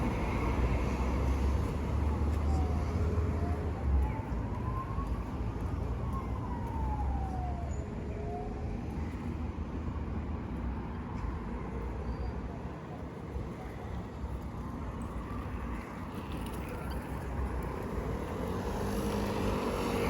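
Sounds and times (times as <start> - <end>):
street traffic rumble: 0.0 - 20.0
emergency siren wailing: 2.0 - 9.2.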